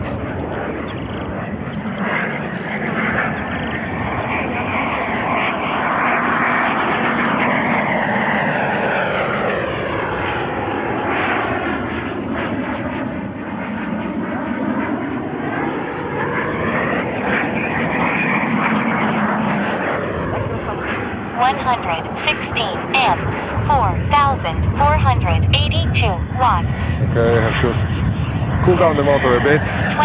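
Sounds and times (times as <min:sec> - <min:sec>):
electric ducted fan jet rush: 0:18.9 - 0:30.0.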